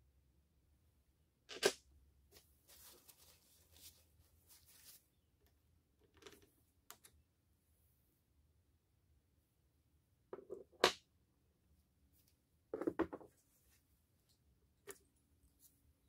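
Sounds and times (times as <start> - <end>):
scraping and rustling: 2.4 - 5.1.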